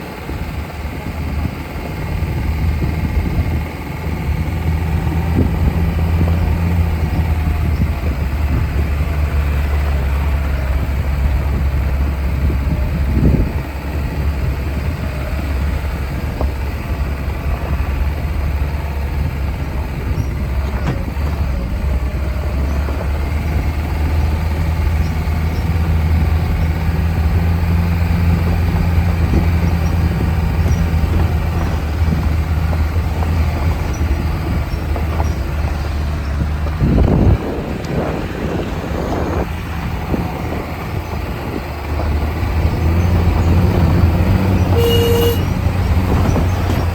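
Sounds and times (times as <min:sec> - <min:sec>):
car engine hum: 0:00.0 - 0:46.9
knocks and rattles: 0:14.0 - 0:38.8, 0:45.4 - 0:46.9.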